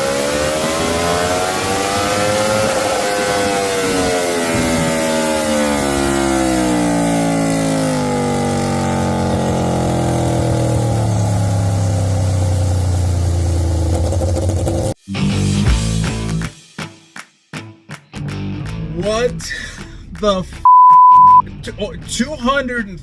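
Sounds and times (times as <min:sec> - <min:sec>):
motorcycle engine revs winding down: 0:00.0 - 0:15.0.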